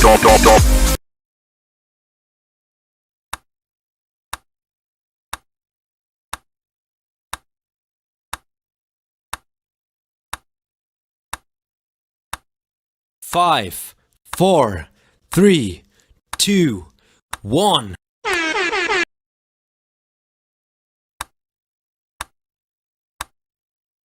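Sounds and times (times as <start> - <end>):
timer ticks: 15.3 - 17.8.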